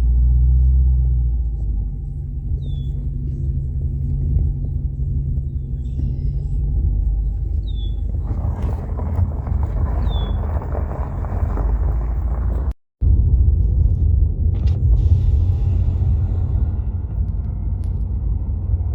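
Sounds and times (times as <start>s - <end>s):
diesel locomotives rumbling: 0.0s - 18.9s
rough wide noise: 2.1s - 12.8s
bird chirps: 2.5s - 3.5s, 5.4s - 8.2s, 10.0s - 10.5s.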